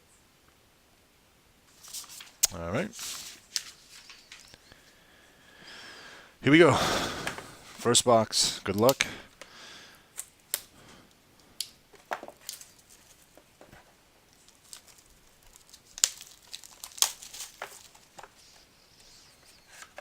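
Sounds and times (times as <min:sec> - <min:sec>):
packaging crinkling and tearing: 0:01.7 - 0:04.6, 0:12.0 - 0:13.4, 0:14.3 - 0:20.0
sharp crackles and clicks: 0:14.3 - 0:20.0.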